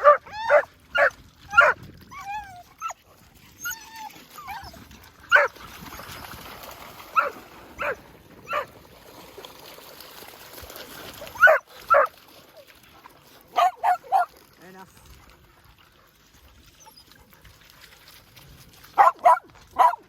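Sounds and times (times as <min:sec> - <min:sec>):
dogs barking: 0:00.0 - 0:01.8, 0:05.3 - 0:05.6, 0:07.1 - 0:08.7, 0:11.3 - 0:12.1, 0:13.5 - 0:14.3, 0:19.0 - 0:20.0
dogs whining: 0:00.0 - 0:05.6, 0:07.2 - 0:08.7.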